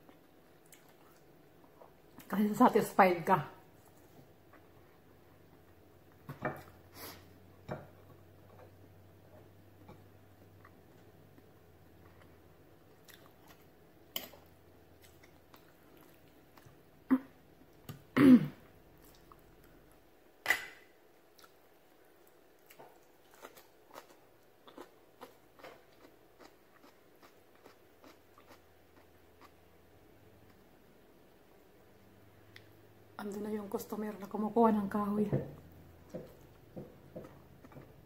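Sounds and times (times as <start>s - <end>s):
person chewing and biting: 22.6s - 29.6s.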